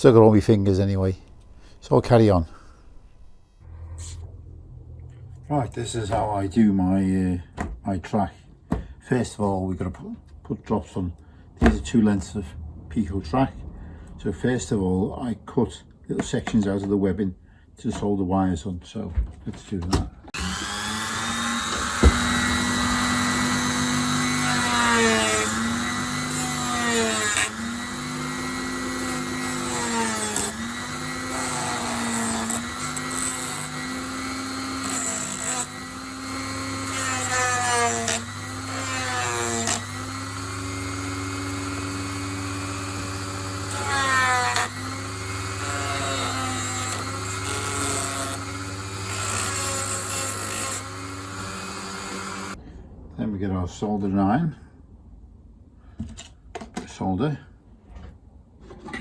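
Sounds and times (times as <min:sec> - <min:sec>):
high-speed power tool cutting plastic: 0:20.3 - 0:52.6.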